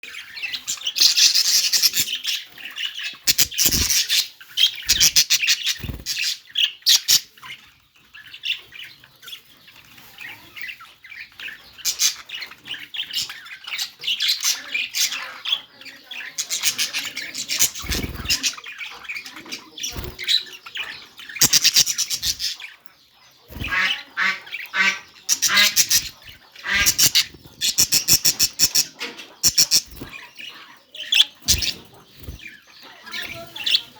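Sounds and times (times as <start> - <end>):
budgerigar chattering and squawking: 0.2 - 7.5, 10.0 - 33.9.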